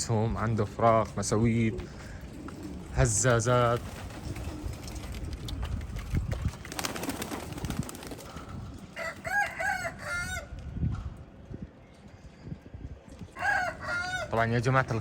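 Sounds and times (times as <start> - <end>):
pigeons cooing: 1.2 - 5.9
rooster crowing: 9.0 - 10.6, 13.4 - 14.4.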